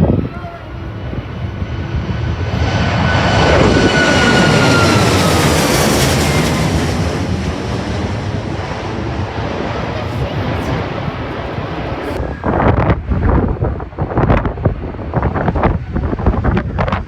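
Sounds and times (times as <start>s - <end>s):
jet fan whine: 0.0s - 14.4s
jet engines rumbling: 0.0s - 17.0s.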